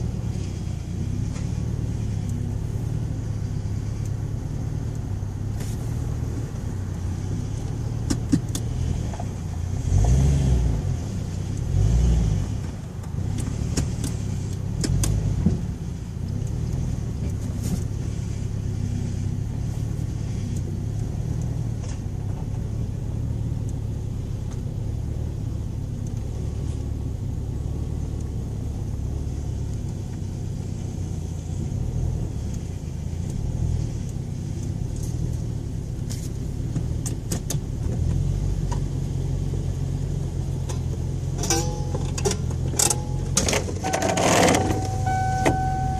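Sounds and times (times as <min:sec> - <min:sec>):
car engine and road rumble: 0:00.0 - 0:45.9
sharp clicks and knocks: 0:07.6 - 0:09.4, 0:12.6 - 0:15.7, 0:34.0 - 0:38.9, 0:40.6 - 0:45.6.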